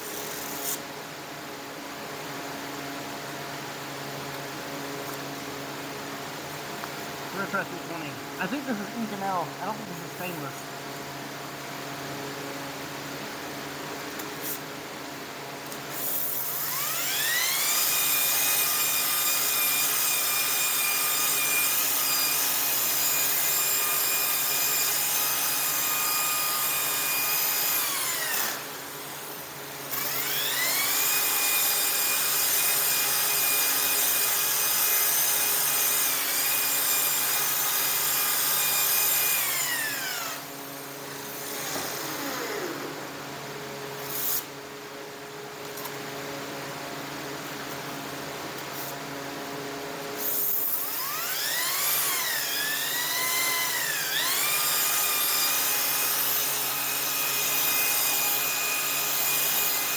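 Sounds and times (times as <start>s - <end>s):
power tool motor whine: 15.9s - 43.3s, 50.2s - 59.9s.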